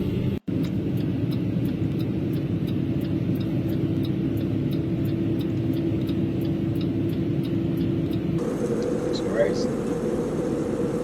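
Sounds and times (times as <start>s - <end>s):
vehicle rumble and hum: 0.0s - 11.0s
faint ticking: 0.5s - 8.9s.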